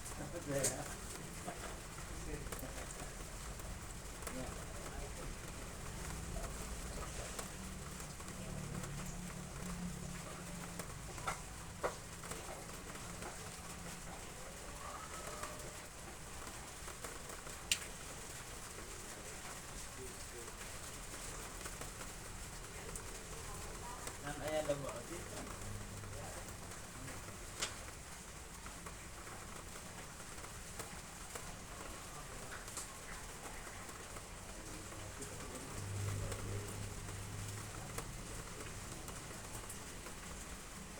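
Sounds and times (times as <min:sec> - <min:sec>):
rain hiss: 0:00.0 - 0:40.9
sharp water drips: 0:00.1 - 0:40.9.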